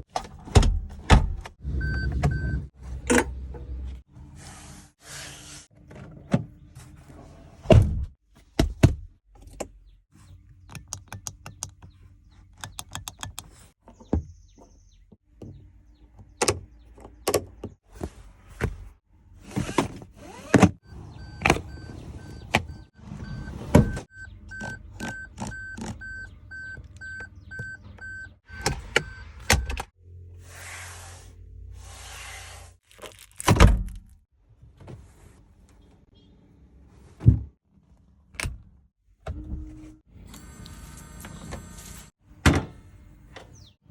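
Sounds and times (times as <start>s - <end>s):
car warning chime beeping: 20.9s - 29.8s
power windows whirring: 40.3s - 42.1s.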